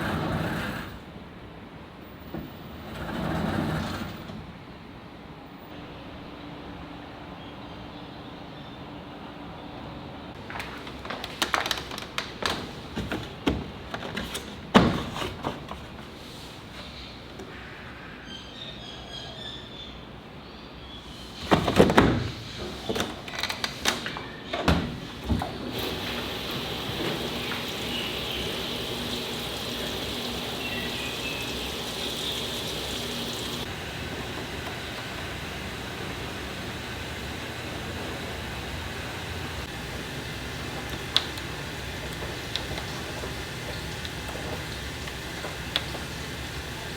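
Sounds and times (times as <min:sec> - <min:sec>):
water rushing into washing machine: 0:00.0 - 0:01.0, 0:24.9 - 0:46.9.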